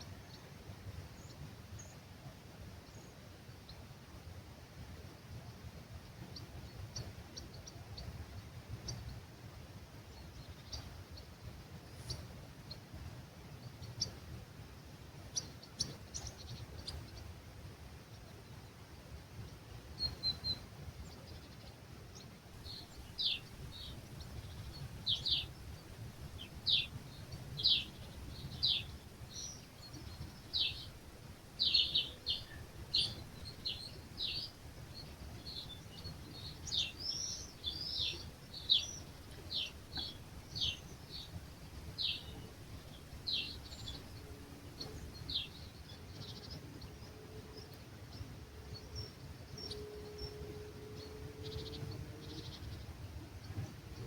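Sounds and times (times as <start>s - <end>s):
bird chirping: 20.0s - 54.0s
breeze rumble: 22.2s - 49.4s.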